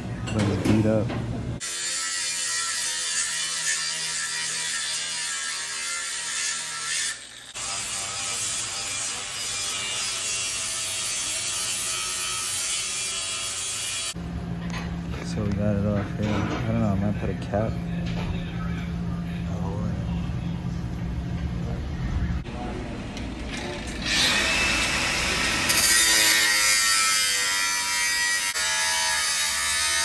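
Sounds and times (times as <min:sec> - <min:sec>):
power tool cutting steel pipe: 0:01.6 - 0:14.2, 0:23.8 - 0:30.0.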